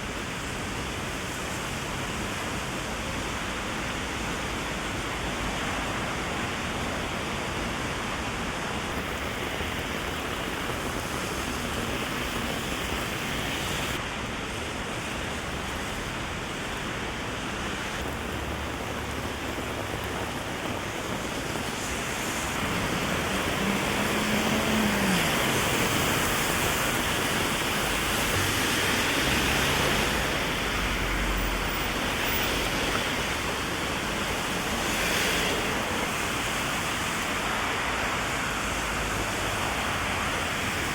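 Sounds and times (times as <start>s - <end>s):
heavy rain on an umbrella: 0.0s - 40.9s.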